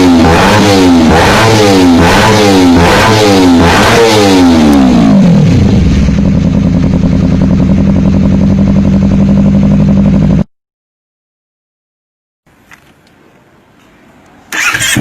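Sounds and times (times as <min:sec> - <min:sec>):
motorcycle engine idling: 0:05.5 - 0:10.4.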